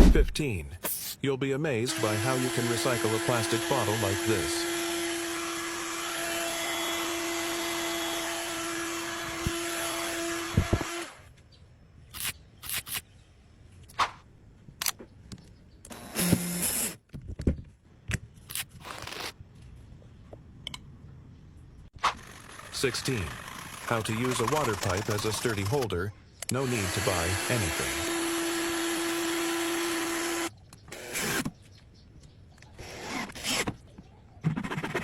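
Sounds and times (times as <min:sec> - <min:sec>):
small power tool running: 0:01.9 - 0:11.3, 0:22.2 - 0:25.8, 0:26.6 - 0:31.5.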